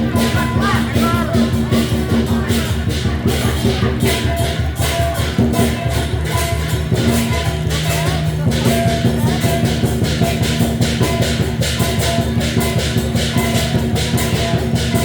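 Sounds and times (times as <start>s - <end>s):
drum and cymbal strikes: 0.0s - 15.0s.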